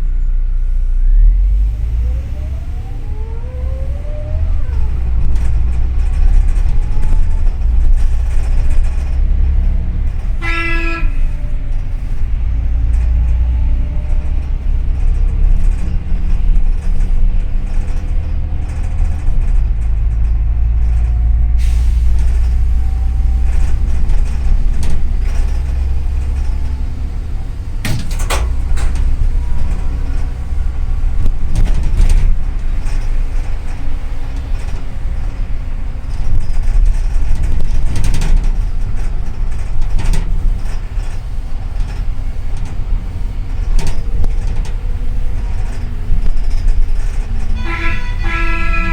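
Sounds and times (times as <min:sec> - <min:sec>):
bus engine rumble: 0:00.0 - 0:48.9
vehicle horn toot: 0:10.4 - 0:11.4, 0:47.6 - 0:48.9.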